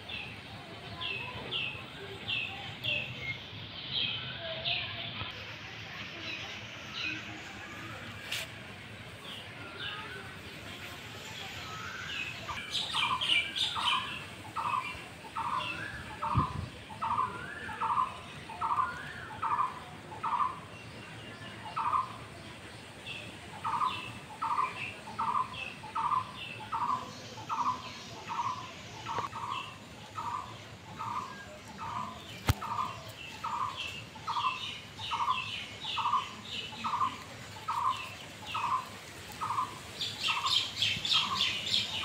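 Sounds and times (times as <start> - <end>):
birds chirping higher: 11.4 - 22.6, 23.2 - 42.0.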